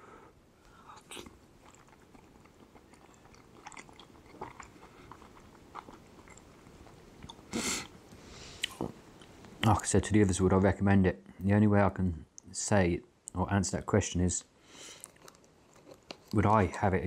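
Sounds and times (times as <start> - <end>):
man chewing: 0.6 - 9.5, 14.7 - 16.4.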